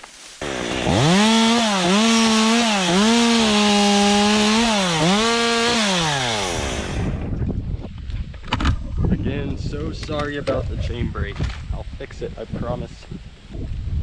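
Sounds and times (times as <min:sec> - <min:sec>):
chainsaw cutting wood: 0:00.4 - 0:07.3.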